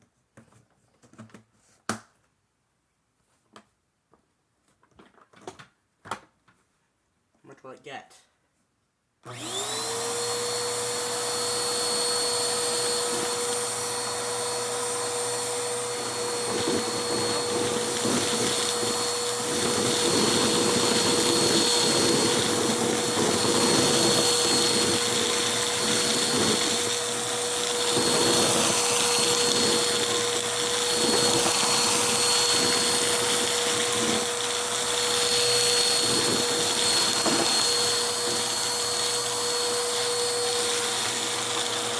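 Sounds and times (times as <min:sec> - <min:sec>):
vacuum cleaner motor whine: 0:09.2 - 0:41.9.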